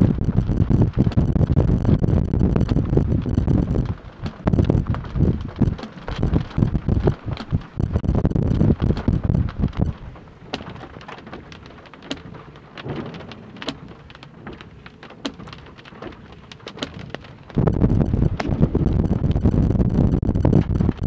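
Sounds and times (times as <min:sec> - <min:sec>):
loud low thunder rumble: 0:00.0 - 0:10.0, 0:17.5 - 0:21.0
raindrops ticking: 0:00.0 - 0:21.0
soft rain hiss: 0:00.0 - 0:21.0.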